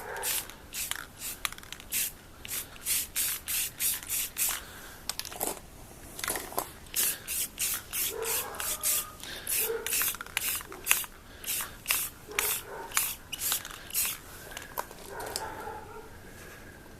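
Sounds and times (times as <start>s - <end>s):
aerosol spray hissing bursts: 0.0s - 4.6s, 6.9s - 14.2s.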